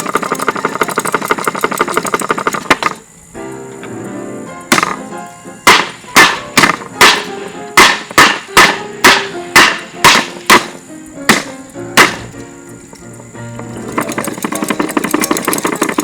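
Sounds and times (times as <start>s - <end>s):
hard blows on ceiling fan: 0.0s - 16.0s.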